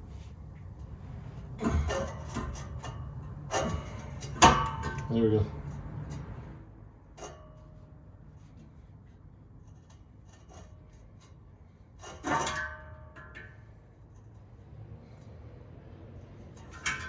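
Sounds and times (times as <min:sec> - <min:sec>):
metallic clank with ring: 0:01.6 - 0:05.1, 0:12.0 - 0:13.9.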